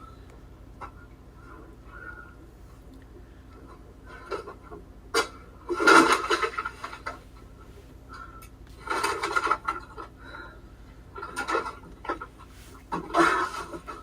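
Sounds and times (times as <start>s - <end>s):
rustling and clattering objects: 3.6s - 10.2s, 11.1s - 14.0s.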